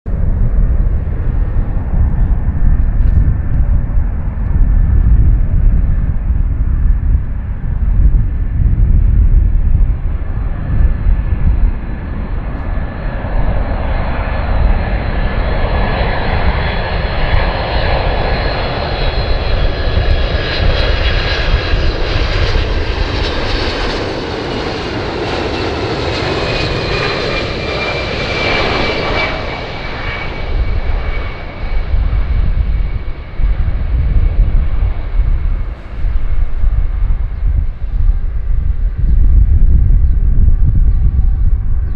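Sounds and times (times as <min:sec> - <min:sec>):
jet engine high whine: 0:00.1 - 0:41.9
jet engines roaring: 0:00.1 - 0:41.9.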